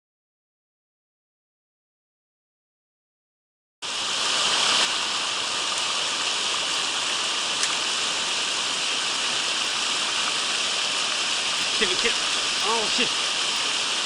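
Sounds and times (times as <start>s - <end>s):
stream water rushing: 3.8s - 14.0s.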